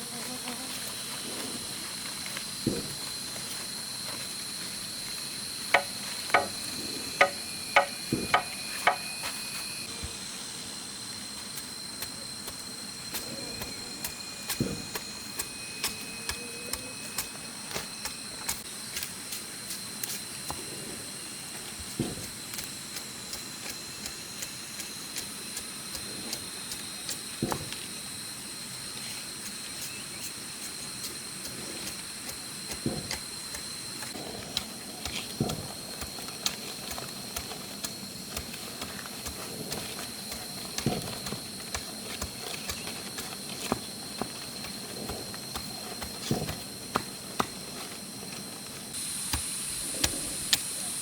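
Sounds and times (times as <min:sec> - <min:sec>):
high-pitched insect drone: 0:00.0 - 0:51.0
tool knocking on wood: 0:05.7 - 0:09.1.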